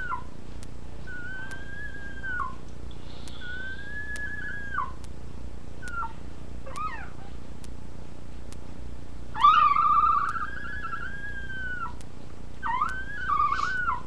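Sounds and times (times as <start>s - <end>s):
puppy whining: 0.0s - 0.3s, 1.0s - 2.6s, 3.3s - 5.0s, 5.8s - 7.4s, 9.3s - 12.0s, 12.6s - 14.0s.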